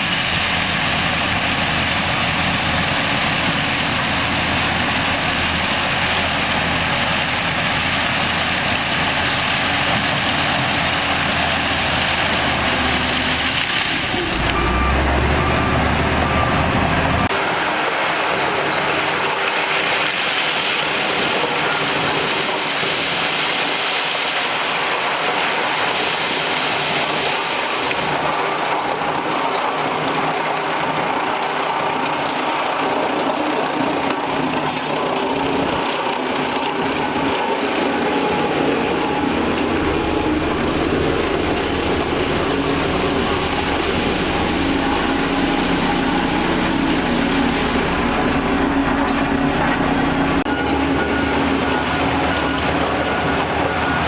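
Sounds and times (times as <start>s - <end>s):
diesel machinery running: 0.0s - 54.0s
high-pitched machine noise: 0.0s - 54.0s
reversing beeps: 14.0s - 17.3s, 42.6s - 54.0s.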